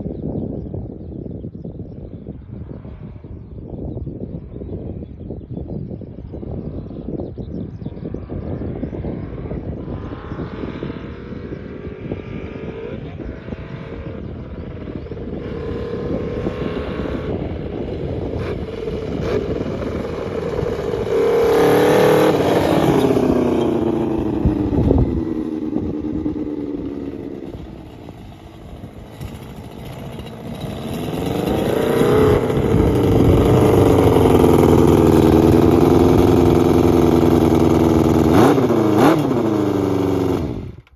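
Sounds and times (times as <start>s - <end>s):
motorcycle engine revving: 8.2s - 40.9s.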